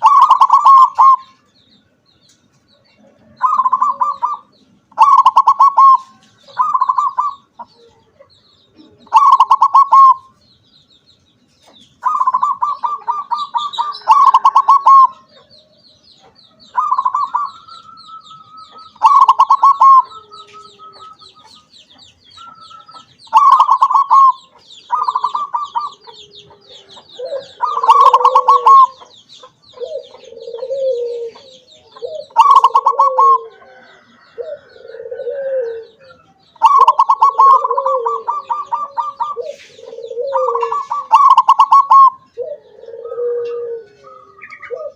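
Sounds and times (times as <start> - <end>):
dove trilled cooing: 0.0 - 1.5, 2.9 - 10.4, 11.6 - 44.9
lower-pitched cooing calls: 0.0 - 1.8, 2.6 - 10.6, 11.6 - 44.9.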